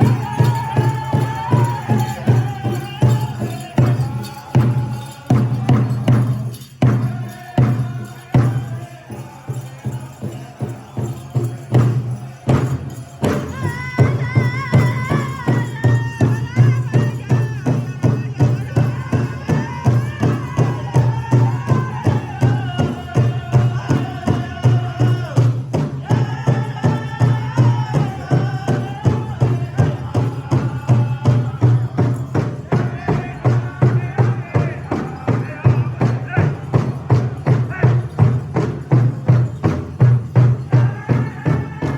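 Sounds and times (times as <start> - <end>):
singers high wavering song: 0.0 - 39.0
big drum beats: 0.0 - 41.9.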